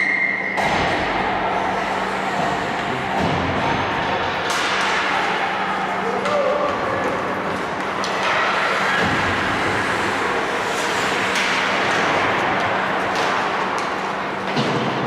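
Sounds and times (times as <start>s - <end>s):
hockey sticks clacking: 1.8s - 15.0s
skate blades scraping ice: 6.8s - 14.2s.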